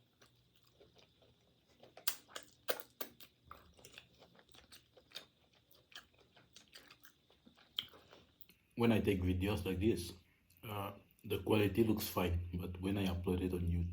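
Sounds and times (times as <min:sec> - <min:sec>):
person crunching crisp food: 0:00.0 - 0:08.5.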